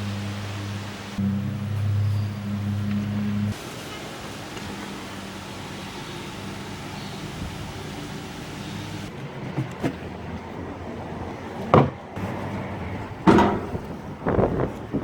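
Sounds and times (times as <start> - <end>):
machine hum: 0.0 - 9.1
knocks and clanks: 11.7 - 12.4, 13.2 - 14.0.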